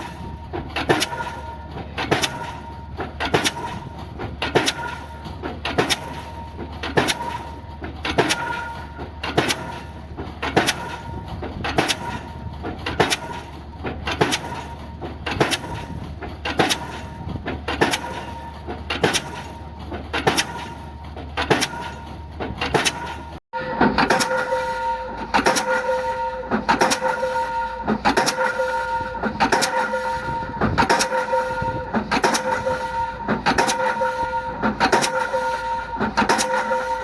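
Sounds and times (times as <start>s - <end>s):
pile hammer blows: 14.1s - 37.0s.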